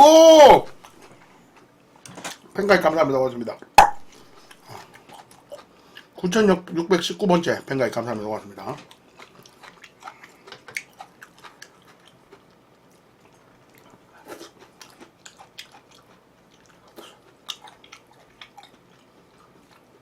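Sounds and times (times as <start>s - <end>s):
person chewing food: 3.8s - 6.2s, 8.6s - 20.0s.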